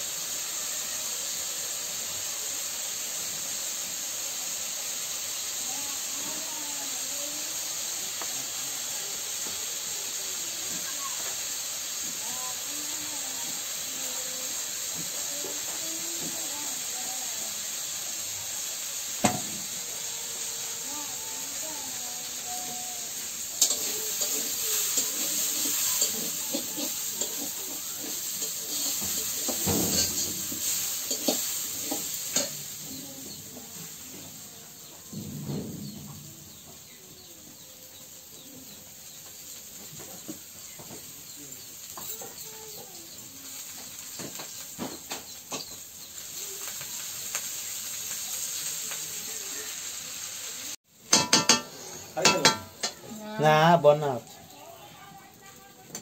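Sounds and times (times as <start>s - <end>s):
aromatics sizzling in oil: 0.0s - 56.0s
metal spatula scraping pan: 23.2s - 32.7s.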